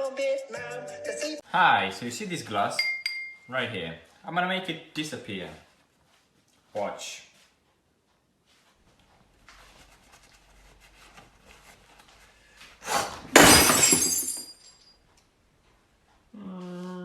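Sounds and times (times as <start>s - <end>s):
glass smashing: 13.3s - 14.9s.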